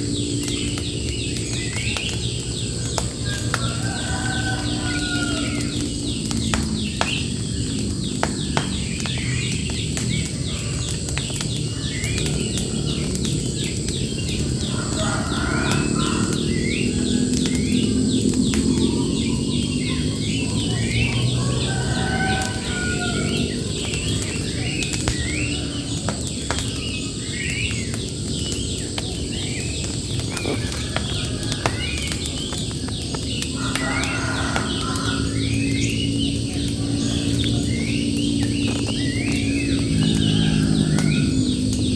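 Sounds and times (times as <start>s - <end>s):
birds singing and calling: 0.0s - 41.9s
sharp cracks: 0.4s - 15.0s, 22.4s - 41.9s
steady low rumble: 35.2s - 41.9s.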